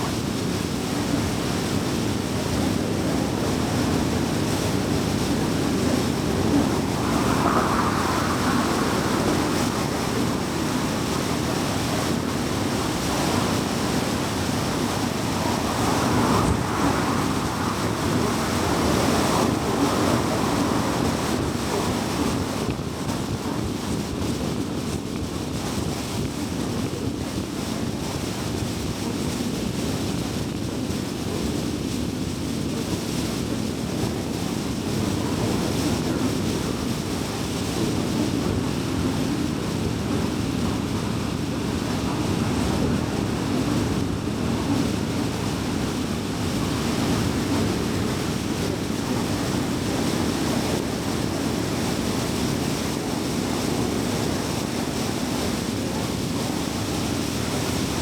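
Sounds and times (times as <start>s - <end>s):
road and tyre noise: 0.0s - 25.0s
low car hum: 3.7s - 22.7s.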